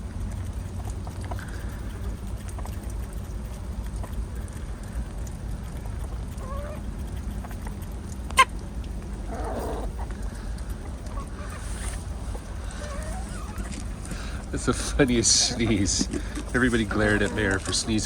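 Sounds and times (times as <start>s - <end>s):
low background rumble: 0.0s - 18.0s
poultry calling: 6.4s - 6.8s, 9.3s - 18.0s.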